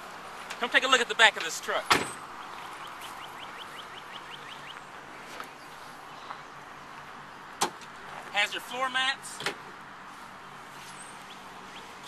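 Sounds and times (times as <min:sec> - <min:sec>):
outdoor background hiss: 0:00.0 - 0:12.0
songbird chirping: 0:02.2 - 0:07.6, 0:10.4 - 0:12.0.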